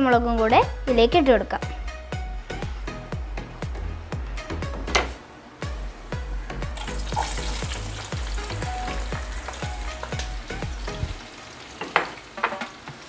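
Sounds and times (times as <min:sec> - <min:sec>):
vegetables sizzling in oil: 0:06.8 - 0:13.0.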